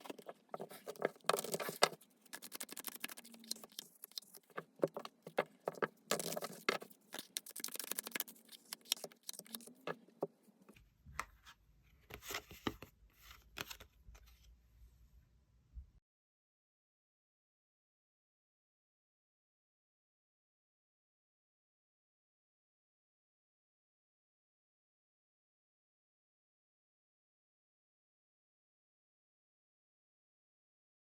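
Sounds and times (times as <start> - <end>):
cards shuffling and rustling: 0.0 - 10.0, 12.1 - 14.5.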